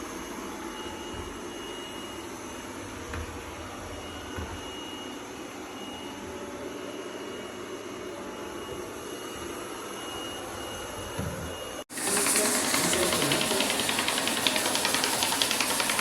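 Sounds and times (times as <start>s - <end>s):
robot vacuum cleaner whirring: 10.5s - 16.0s.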